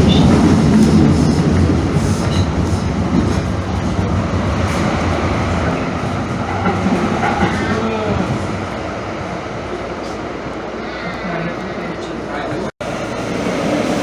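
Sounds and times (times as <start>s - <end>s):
rumble of train wheels on rails: 0.0s - 14.0s.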